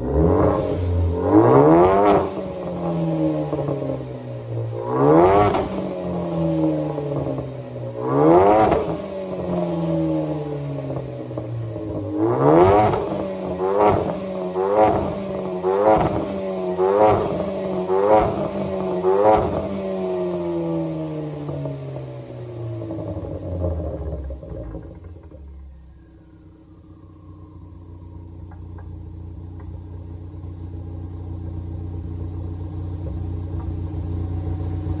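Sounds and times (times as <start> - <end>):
car engine revving: 0.0 - 25.8.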